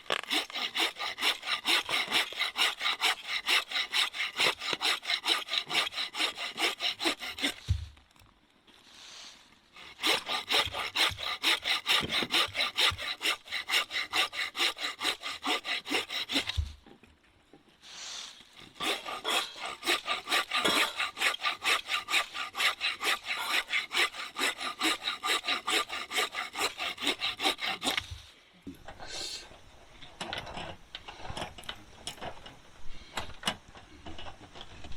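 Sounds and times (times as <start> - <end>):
hand saw cutting wood: 0.0 - 7.8, 9.7 - 16.8, 18.6 - 28.3.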